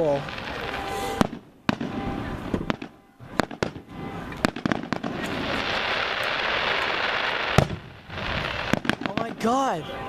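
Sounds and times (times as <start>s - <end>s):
dense steady hiss: 5.4s - 10.0s.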